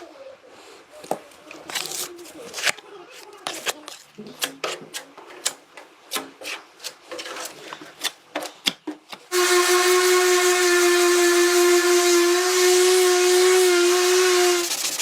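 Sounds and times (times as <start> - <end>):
workshop tool hissing and whining: 9.3 - 15.0.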